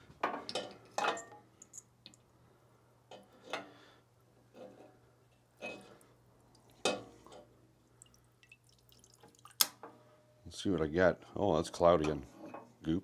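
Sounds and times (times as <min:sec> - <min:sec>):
fuel dripping into a cup: 0:07.9 - 0:09.6.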